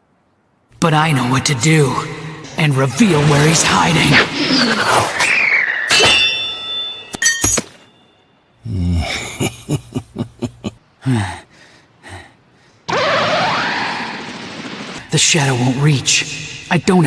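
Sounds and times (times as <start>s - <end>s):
falling swish: 1.9s - 6.7s
metallic ring and clinks: 6.0s - 8.3s.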